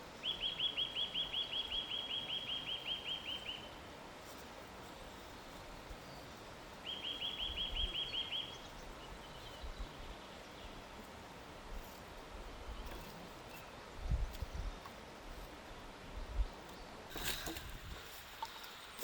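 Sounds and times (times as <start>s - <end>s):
forest hiss: 0.0s - 19.0s
songbird trilling: 0.2s - 3.7s, 6.8s - 10.8s.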